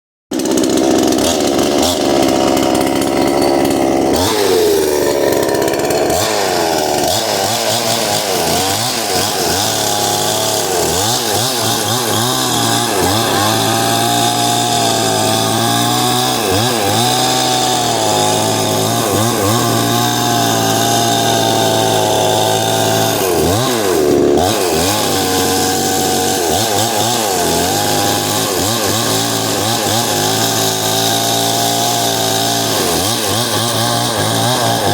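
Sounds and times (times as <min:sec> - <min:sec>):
chainsaw engine revving: 0:00.3 - 0:34.9.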